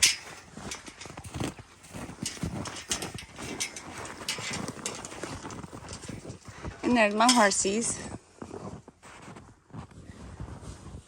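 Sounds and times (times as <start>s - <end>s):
footsteps crunching through snow: 0.0s - 11.0s.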